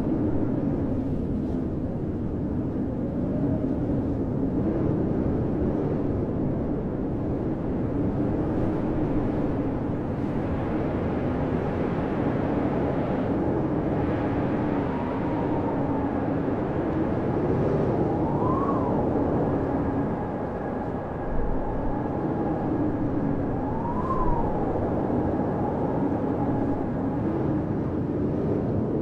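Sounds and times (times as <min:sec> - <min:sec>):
howling blizzard wind: 0:00.0 - 0:29.0
high wind whistle: 0:06.9 - 0:29.0.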